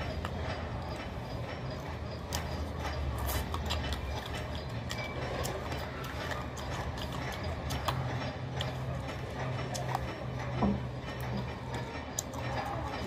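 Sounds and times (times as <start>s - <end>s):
person chewing and lip-smacking: 0.0s - 10.5s, 11.2s - 13.0s
steady low hum: 0.0s - 13.0s.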